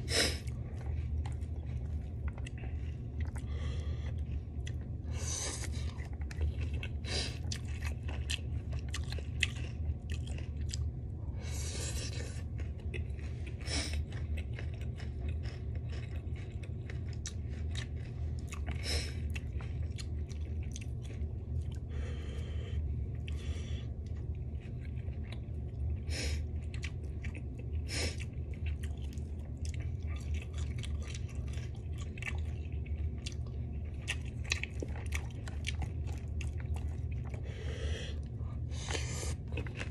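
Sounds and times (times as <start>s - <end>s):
chewing and crunching food: 0.0s - 39.9s
steady low hum: 0.0s - 39.9s.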